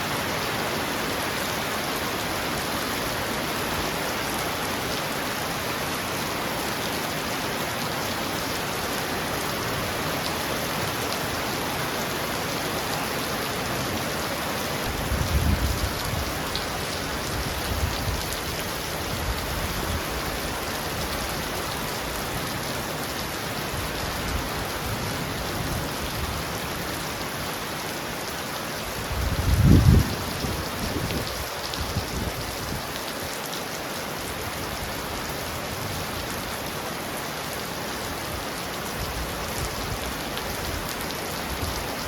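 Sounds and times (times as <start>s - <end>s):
heavy rain on a roof: 0.0s - 42.0s.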